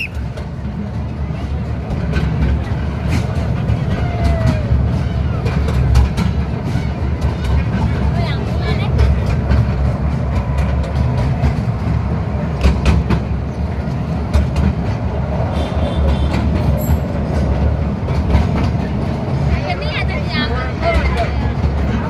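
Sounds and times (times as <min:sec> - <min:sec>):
train wheels rumbling: 0:00.0 - 0:22.0
clicks and clatter from rails: 0:00.3 - 0:15.3.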